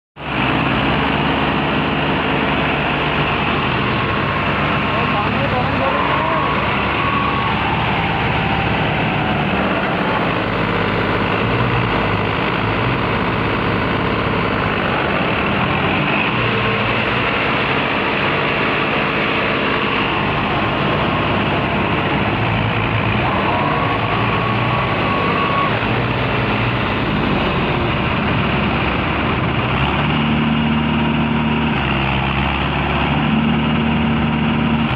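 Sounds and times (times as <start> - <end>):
vehicle engine running: 0.2 - 34.9.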